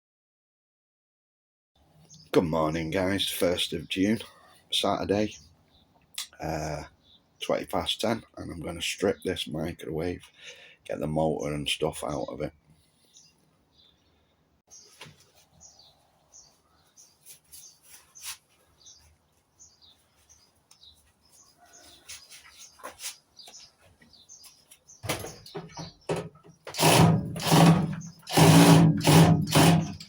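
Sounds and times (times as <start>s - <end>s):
small birds chirping: 1.9s - 28.4s
harsh mechanical clatter: 26.7s - 30.0s.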